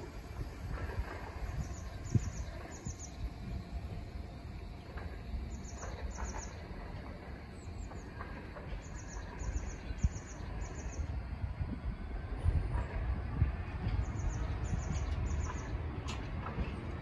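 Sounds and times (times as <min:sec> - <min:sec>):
freight train wagons rumbling: 0:00.0 - 0:17.0.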